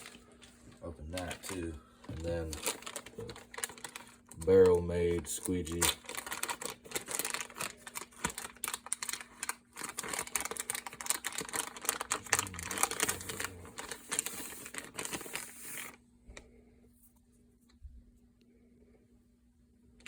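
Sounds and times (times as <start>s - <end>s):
plastic packaging crinkling and tearing: 0.0s - 16.0s.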